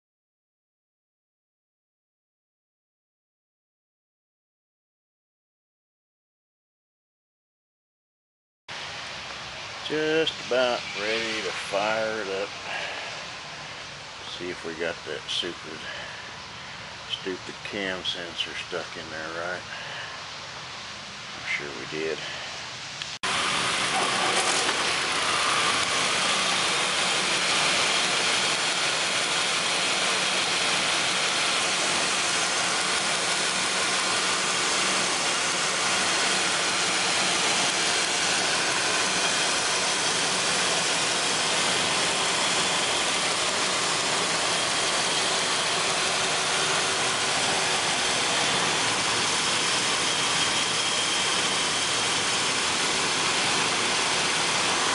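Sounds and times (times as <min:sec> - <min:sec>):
car engine idling: 0:23.2 - 0:54.9.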